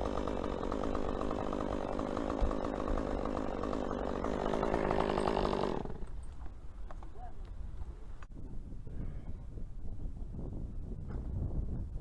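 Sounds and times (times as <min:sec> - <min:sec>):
chainsaw engine running: 0:00.0 - 0:06.5.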